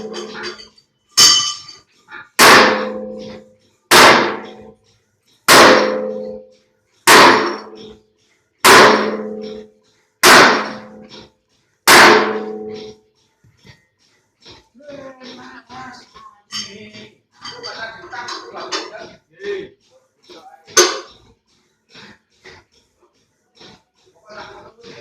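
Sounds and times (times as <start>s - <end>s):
hammer striking metal: 0.0s - 4.8s, 5.4s - 8.0s, 8.6s - 13.0s, 20.7s - 21.3s.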